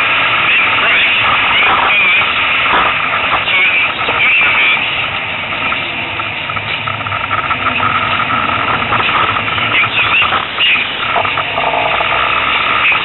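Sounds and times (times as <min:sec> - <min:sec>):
race car engine whine: 0:00.0 - 0:13.0
steady engine hum: 0:00.0 - 0:13.0.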